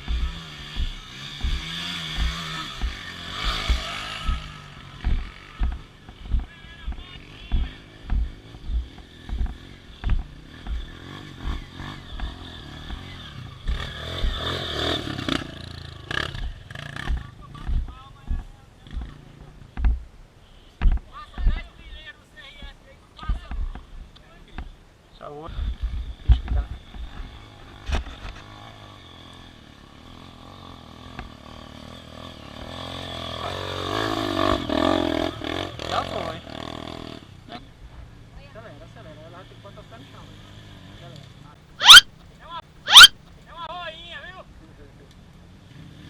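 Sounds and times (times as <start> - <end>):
low thuds: 0.0 - 14.5, 16.2 - 20.2, 20.8 - 21.7, 25.6 - 27.3
rumbling thumps: 0.0 - 14.5, 16.2 - 20.2, 25.6 - 27.3
vehicle engine revving: 0.0 - 20.0, 25.7 - 37.3.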